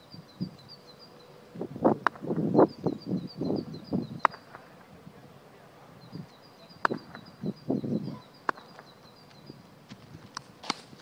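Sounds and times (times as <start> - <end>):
muffled distant voices: 4.3 - 9.0.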